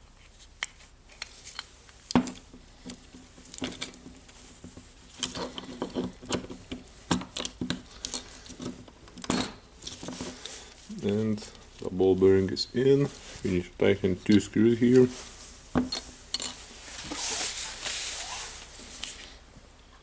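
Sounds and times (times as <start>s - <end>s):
small metal parts clicking: 5.2s - 11.2s.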